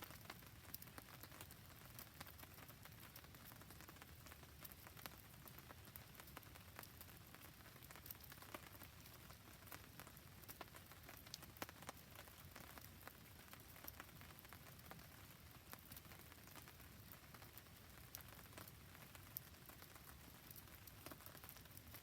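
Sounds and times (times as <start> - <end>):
faint rain on a surface: 0.0 - 22.0
campfire burning: 0.1 - 22.0.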